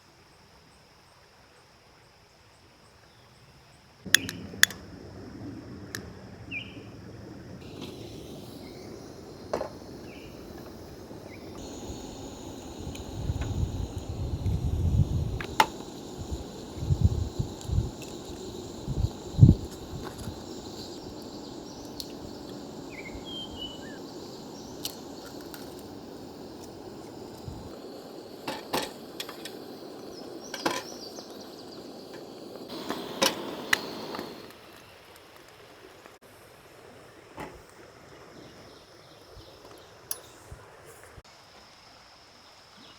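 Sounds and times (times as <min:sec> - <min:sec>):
creek flowing: 0:07.6 - 0:39.0.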